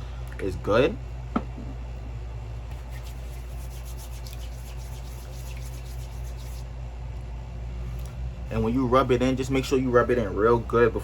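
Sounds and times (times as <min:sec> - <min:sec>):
steady low hum: 0:00.0 - 0:11.0
hands rubbing hair: 0:02.7 - 0:06.7.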